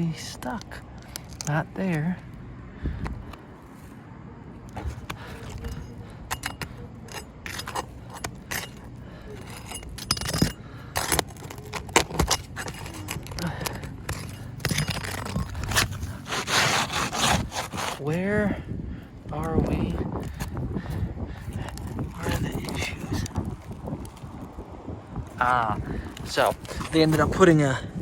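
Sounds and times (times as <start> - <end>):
metal tool scraping under shingles: 4.7 - 18.3, 19.4 - 24.3, 25.9 - 27.7.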